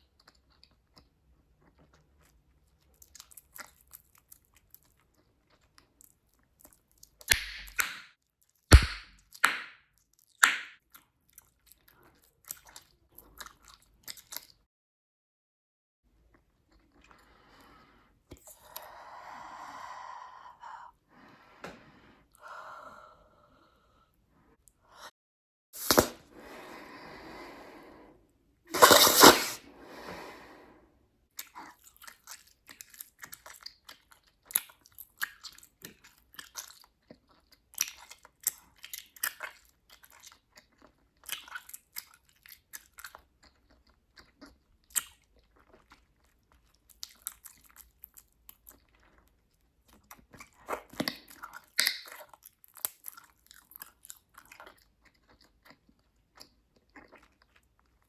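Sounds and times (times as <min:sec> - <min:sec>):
bubblegum chewing: 0:08.7 - 0:09.1.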